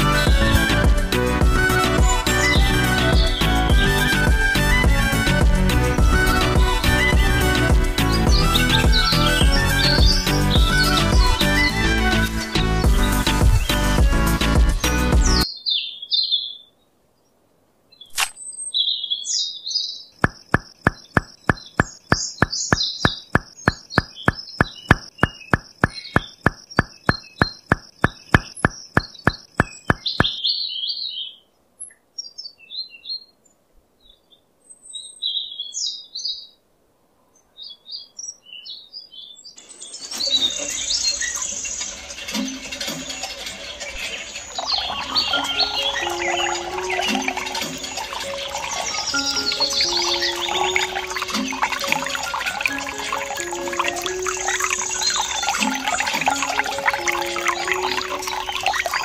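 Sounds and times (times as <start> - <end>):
birds chirping: 0.0 - 36.6, 37.2 - 59.0
even ticking: 20.2 - 30.4, 40.9 - 59.0
water gushing and splashing: 40.2 - 59.0.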